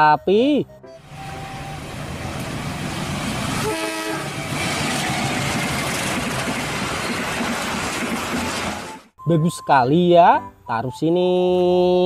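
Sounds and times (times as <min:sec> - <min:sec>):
train rumbling on track: 0:01.0 - 0:09.1
train horn: 0:03.5 - 0:04.8.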